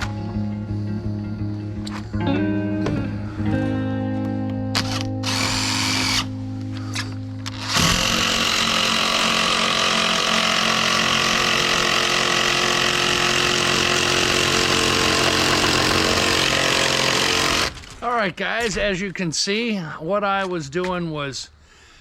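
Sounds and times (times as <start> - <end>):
machine motor humming: 4.8 - 6.3, 7.4 - 17.7.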